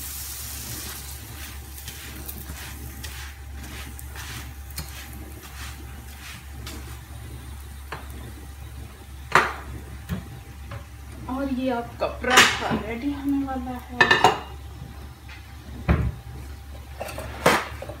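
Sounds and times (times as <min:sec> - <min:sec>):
flatbread sizzling on griddle: 0:00.0 - 0:18.0
metal spatula scraping griddle: 0:00.8 - 0:07.0.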